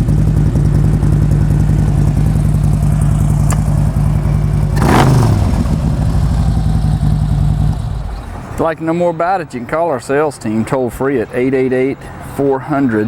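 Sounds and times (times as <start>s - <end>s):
motorcycle engine idling: 0.0s - 8.6s
sharp tick: 3.3s - 5.6s.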